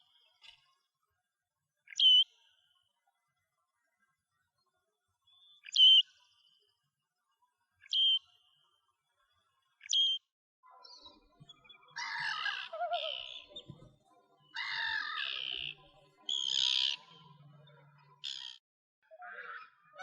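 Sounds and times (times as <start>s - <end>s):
bird calling: 11.9s - 13.8s, 14.5s - 17.1s.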